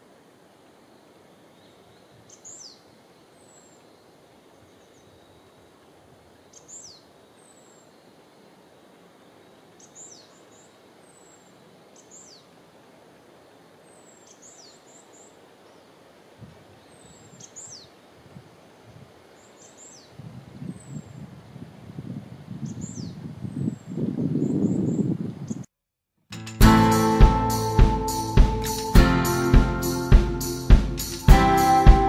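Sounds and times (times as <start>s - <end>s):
faint outdoor hiss: 0.0s - 25.7s, 26.3s - 32.0s
songbird calling: 1.4s - 3.9s, 9.8s - 12.5s, 13.8s - 15.9s, 16.8s - 18.0s.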